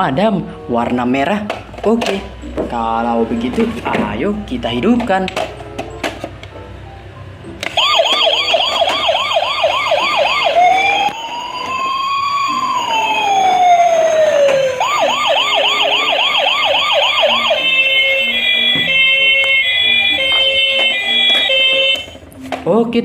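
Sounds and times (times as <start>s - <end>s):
toy fire truck siren: 7.8s - 22.2s
electronic beeping tone: 15.2s - 22.1s.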